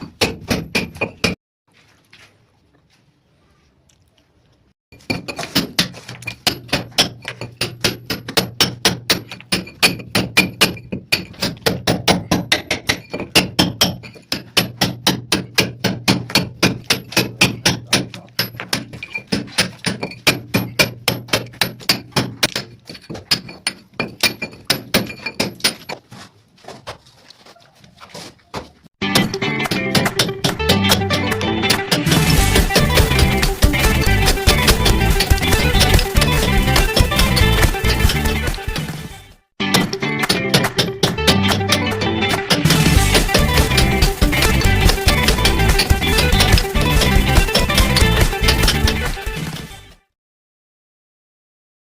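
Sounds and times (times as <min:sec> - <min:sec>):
hammer and chisel on masonry: 0:00.0 - 0:01.4, 0:05.0 - 0:26.8, 0:28.1 - 0:31.0, 0:39.7 - 0:49.2.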